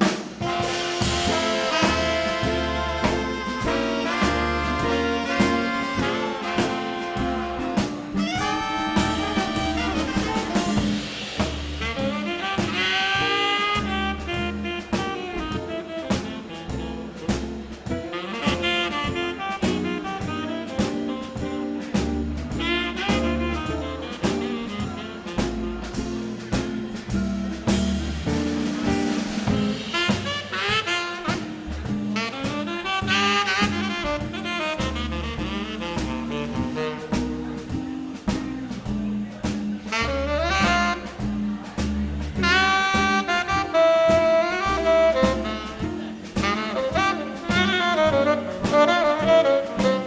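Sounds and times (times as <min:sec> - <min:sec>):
drum accents: 0:00.0 - 0:50.0
swing jazz band playing: 0:00.0 - 0:50.0
walking upright bass: 0:00.0 - 0:50.0
saxophone runs: 0:00.4 - 0:11.0.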